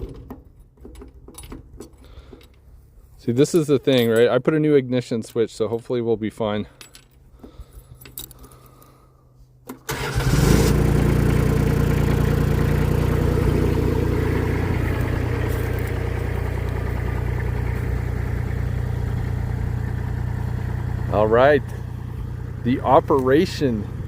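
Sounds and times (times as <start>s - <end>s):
diesel engine starting and idling: 9.7s - 24.0s.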